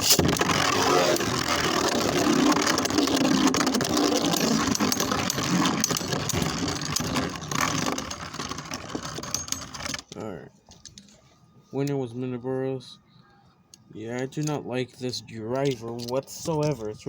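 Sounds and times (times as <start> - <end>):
spinning tops whirring and clattering: 0.0 - 10.1.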